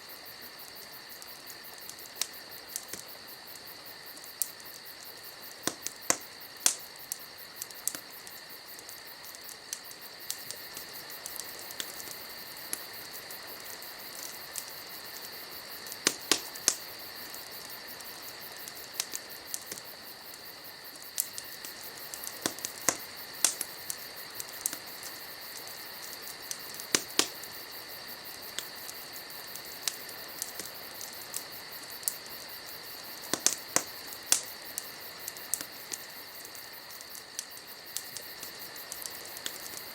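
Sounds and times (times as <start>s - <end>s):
night insects chirping: 0.0s - 39.9s
wood fire crackling and popping: 0.0s - 39.9s.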